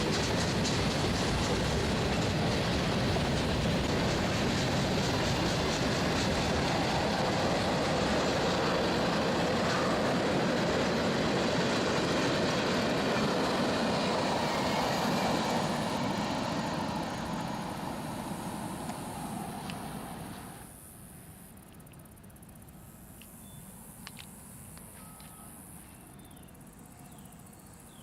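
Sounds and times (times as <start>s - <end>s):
freight train rumbling past: 0.0s - 20.8s.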